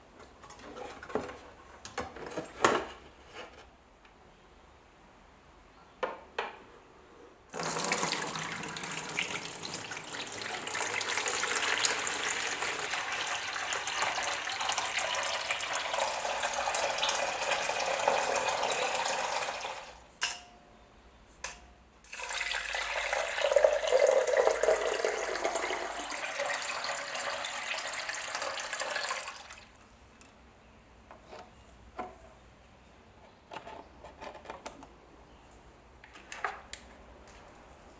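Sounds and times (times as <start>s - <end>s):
water running from a tap: 7.6s - 20.0s, 22.1s - 29.7s.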